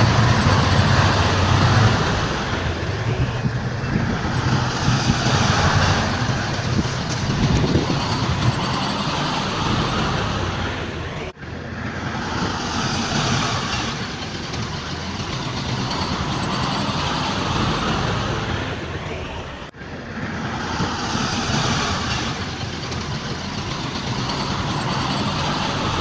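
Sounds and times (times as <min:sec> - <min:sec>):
diesel machinery engine drone: 0:00.0 - 0:26.0.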